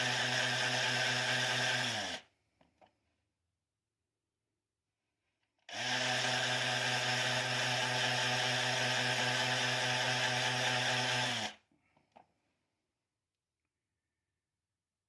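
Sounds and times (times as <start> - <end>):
small electric motor running: 0.0 - 2.2, 5.7 - 11.6.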